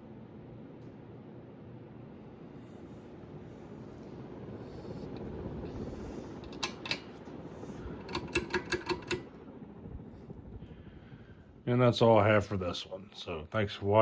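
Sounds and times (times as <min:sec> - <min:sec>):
ceiling fan whirring: 0:00.0 - 0:14.0
sharp clicks: 0:08.1 - 0:09.3.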